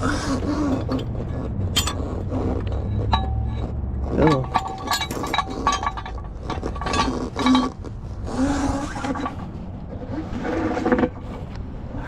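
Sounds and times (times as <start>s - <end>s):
tools scraping: 0.0s - 11.6s
metallic clinks: 2.8s - 7.8s.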